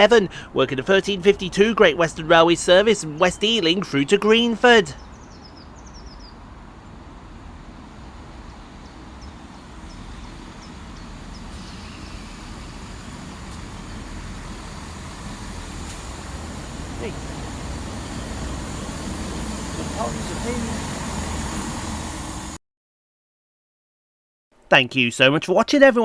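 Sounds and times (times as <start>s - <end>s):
small birds chirping: 0.0s - 6.6s, 8.3s - 12.3s
diesel train rumbling: 0.0s - 22.6s.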